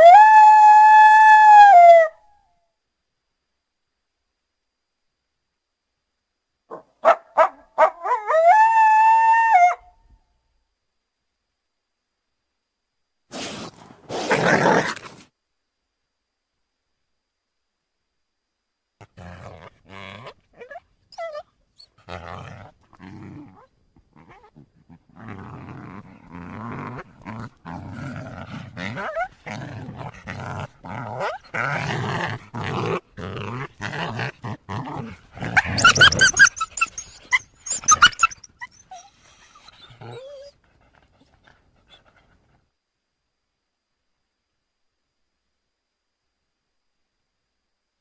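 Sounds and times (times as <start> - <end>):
coyotes calling: 35.5 - 40.0.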